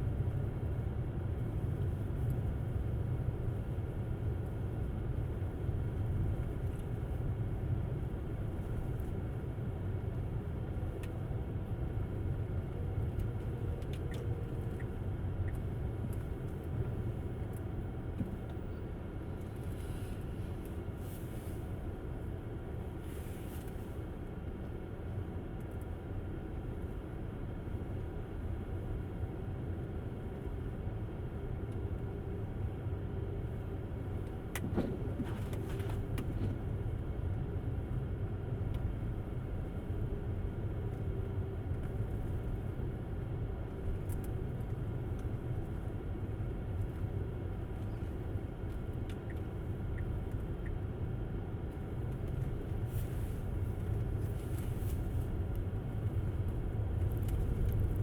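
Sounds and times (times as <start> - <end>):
tyres rumbling on snowy road: 33.6 - 58.0.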